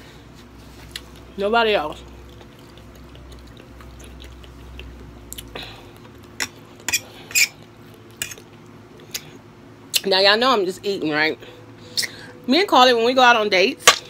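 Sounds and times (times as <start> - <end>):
person chewing with wet mouth clicks: 2.1 - 6.9.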